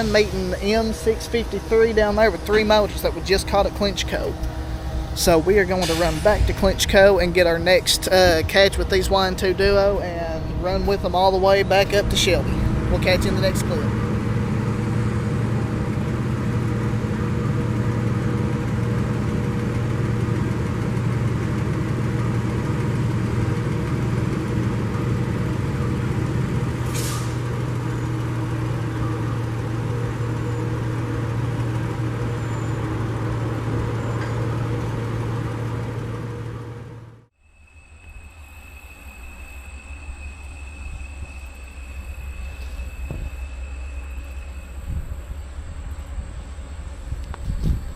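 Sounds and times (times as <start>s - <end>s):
engine droning: 0.0s - 47.9s
brief hiss: 5.8s - 6.6s.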